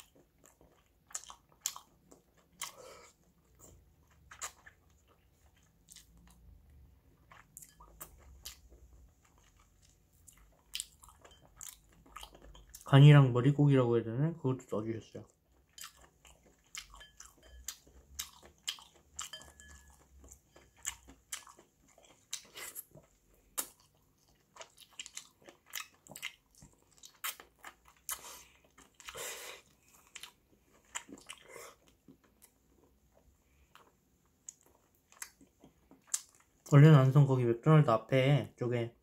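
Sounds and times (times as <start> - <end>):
person chewing with mouth smacks: 0.0 - 12.9, 15.3 - 36.7.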